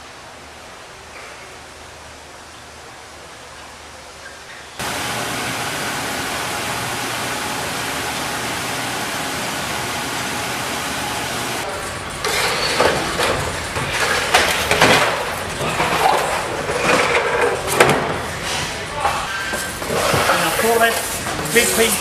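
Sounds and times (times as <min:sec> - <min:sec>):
factory machinery running: 0:04.8 - 0:20.0.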